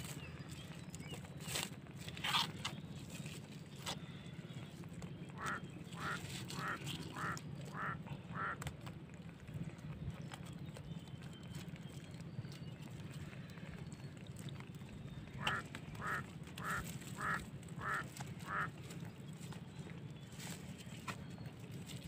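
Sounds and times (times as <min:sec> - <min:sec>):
clicks and rustles of crab tying: 0:00.0 - 0:22.0
steady low hum: 0:00.0 - 0:22.0
bird calling: 0:05.3 - 0:08.6, 0:15.2 - 0:18.8.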